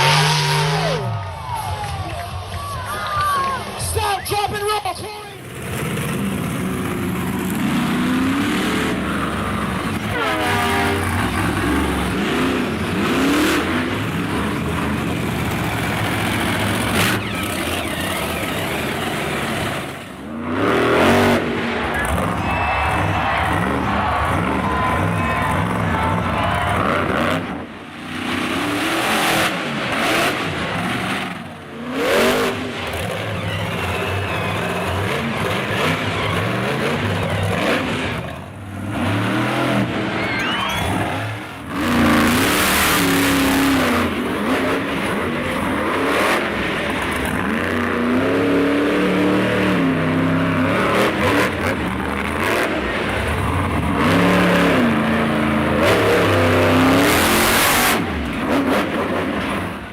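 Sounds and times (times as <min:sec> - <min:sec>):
monster truck engines revving: 0:00.0 - 0:59.9.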